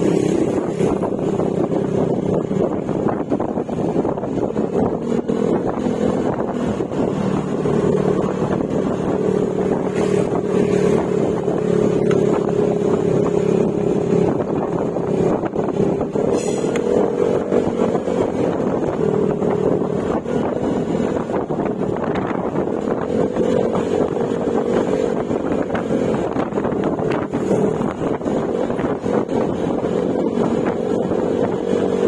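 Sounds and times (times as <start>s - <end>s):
scooter engine running: 0.0s - 32.0s
wind and road noise: 0.0s - 32.0s.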